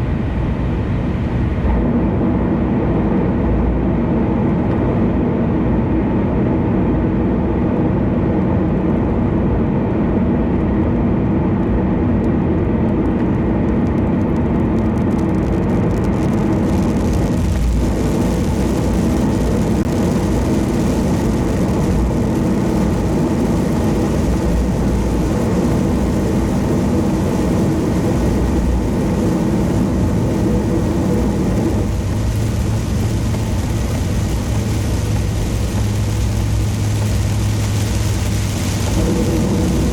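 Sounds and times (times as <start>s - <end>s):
tyre and engine rumble: 0.0s - 39.9s
high road hiss: 15.5s - 39.9s.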